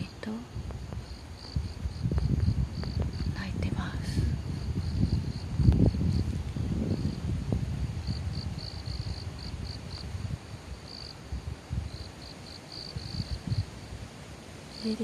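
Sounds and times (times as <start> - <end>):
low rumble: 0.0 - 10.6
crickets chirping: 0.0 - 15.0.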